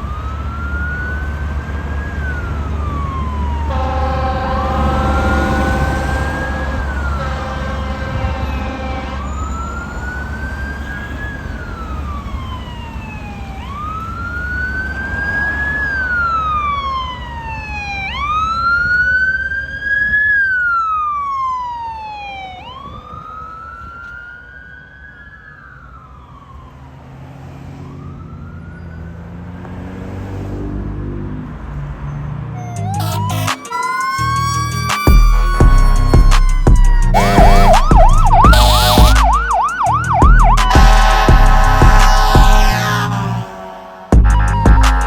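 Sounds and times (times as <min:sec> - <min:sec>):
truck engine rumble: 0:00.0 - 0:18.4, 0:32.6 - 0:45.0
fire engine siren wailing: 0:00.0 - 0:29.5, 0:32.6 - 0:45.0.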